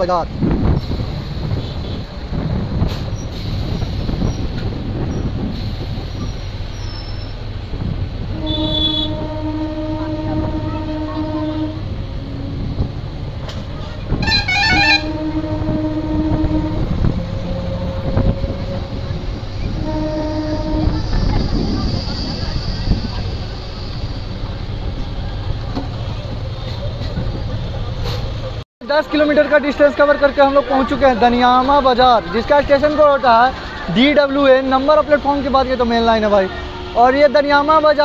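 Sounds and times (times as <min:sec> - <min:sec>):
train rumbling to a halt: 0:00.0 - 0:38.0
train horn blasts: 0:08.2 - 0:24.0, 0:36.5 - 0:37.2
harsh high horn: 0:08.3 - 0:12.9, 0:13.8 - 0:22.3.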